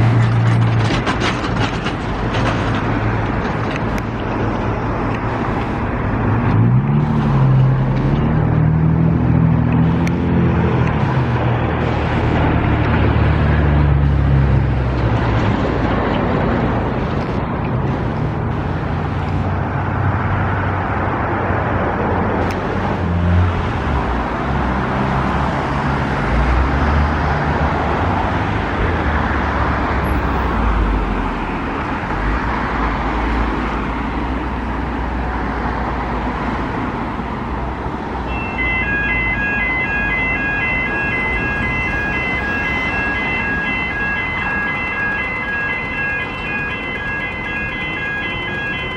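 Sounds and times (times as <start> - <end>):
traffic rumbling past: 0.0 - 48.9
crossing warning bells ringing: 38.2 - 48.9.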